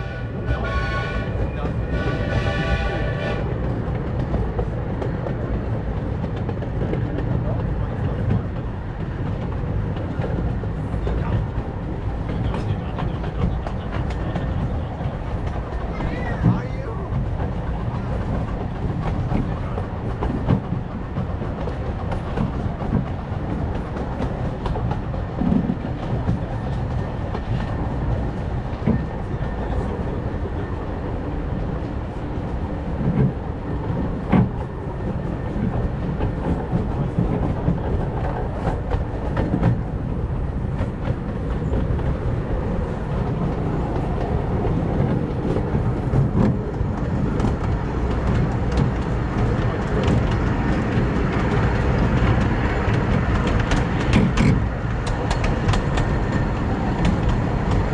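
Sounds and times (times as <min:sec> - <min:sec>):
train cars rumbling: 0:00.0 - 0:57.9
wheels clacking over rail joints: 0:00.4 - 0:57.9.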